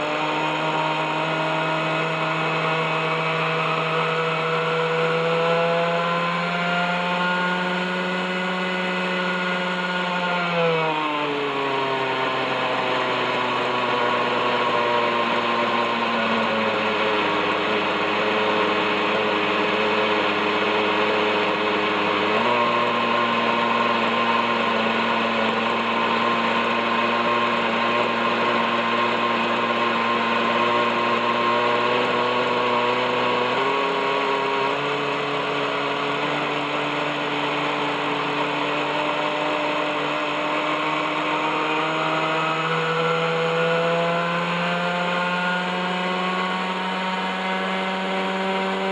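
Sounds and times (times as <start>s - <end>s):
model helicopter engine running: 0.0s - 48.9s.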